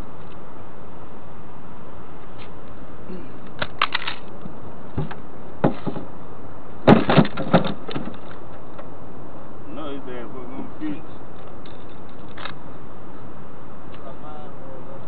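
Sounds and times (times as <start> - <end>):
gear handling clicks and knocks: 11.4 - 12.6.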